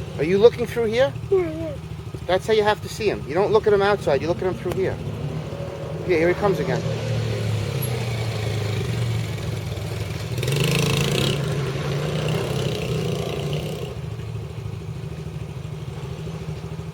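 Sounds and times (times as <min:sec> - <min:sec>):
dirt bike engine passing: 0:03.4 - 0:14.1.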